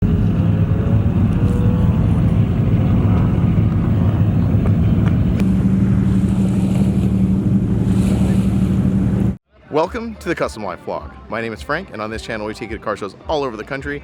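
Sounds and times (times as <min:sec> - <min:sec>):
engine droning: 0:00.0 - 0:09.4.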